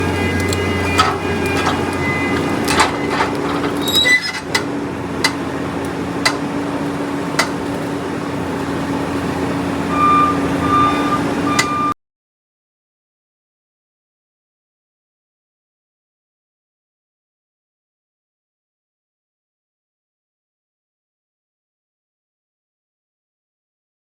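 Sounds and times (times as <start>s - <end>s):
reversing alarm beeps: 0.0s - 4.4s, 9.8s - 12.0s
skid steer engine running: 0.0s - 12.0s.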